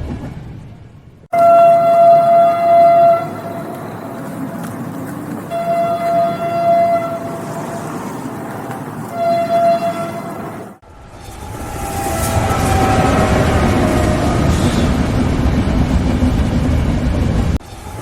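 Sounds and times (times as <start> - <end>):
train rumbling: 0.0 - 18.0
train horn blasts: 1.3 - 4.1, 5.4 - 8.2, 9.1 - 15.0.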